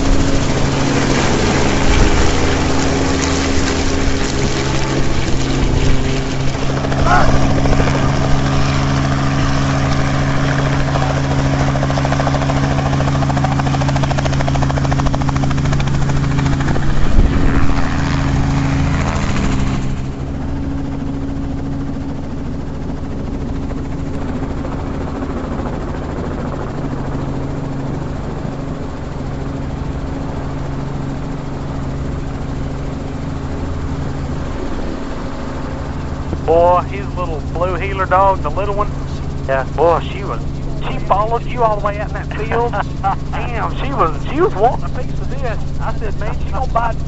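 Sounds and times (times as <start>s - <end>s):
helicopter rotor and engine running: 0.0s - 47.0s.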